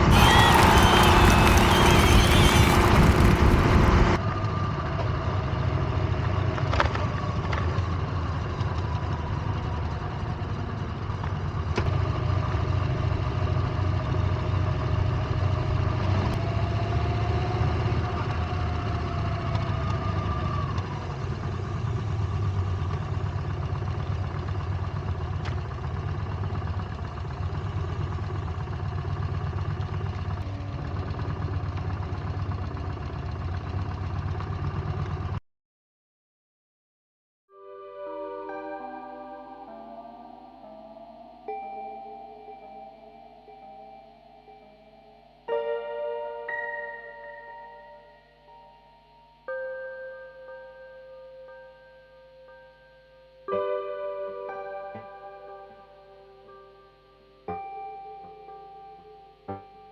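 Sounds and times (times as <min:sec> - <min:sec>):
motorcycle engine idling: 0:00.5 - 0:15.9, 0:18.0 - 0:35.4.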